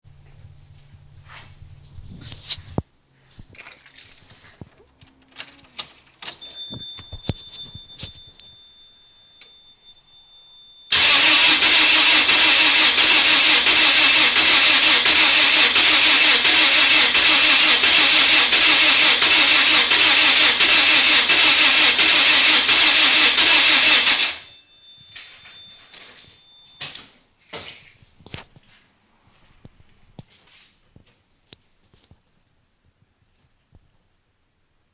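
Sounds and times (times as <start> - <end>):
car engine cranking on starter: 10.9 - 24.4.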